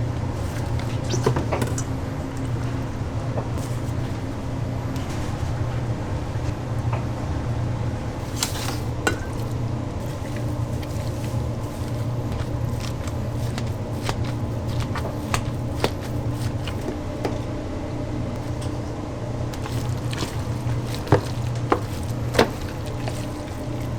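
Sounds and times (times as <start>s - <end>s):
low hum of machinery: 0.0s - 23.9s
clicks and knocks of handling: 8.2s - 17.5s, 19.5s - 23.9s.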